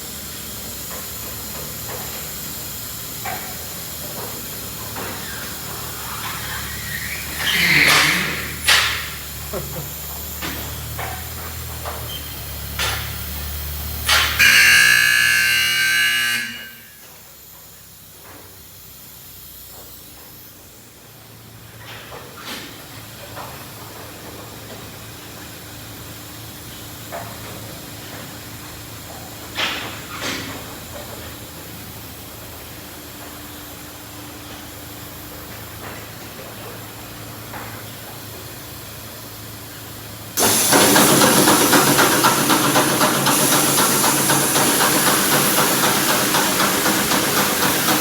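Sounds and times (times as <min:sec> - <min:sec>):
loud hissing blast with whine: 0:00.0 - 0:11.2, 0:40.1 - 0:48.0
car wash spray hissing: 0:00.0 - 0:14.8, 0:36.8 - 0:48.0.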